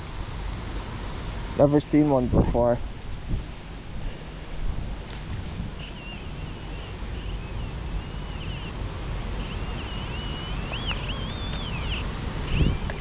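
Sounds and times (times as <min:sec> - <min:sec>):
wind buffeting microphone: 0:02.1 - 0:13.0
high wavering chirping tone: 0:05.8 - 0:13.0.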